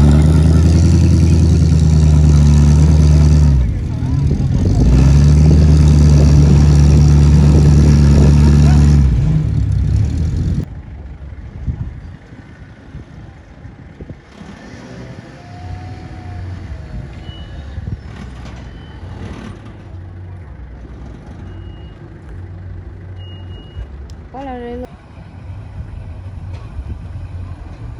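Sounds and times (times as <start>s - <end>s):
car engine running: 0.0s - 12.1s
short high beeps: 23.2s - 23.9s.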